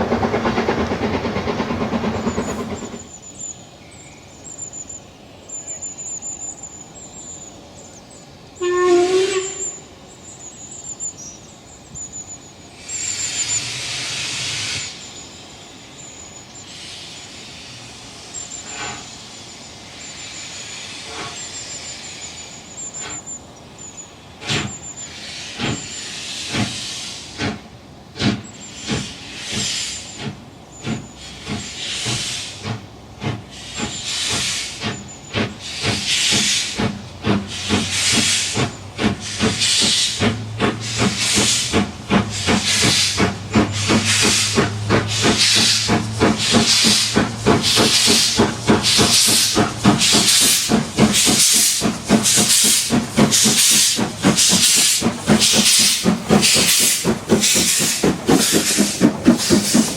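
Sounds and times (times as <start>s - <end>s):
locomotive exhaust beats: 0.0s - 3.5s, 22.3s - 59.9s
steam hissing: 0.0s - 59.9s
steam locomotive whistle: 8.6s - 10.0s.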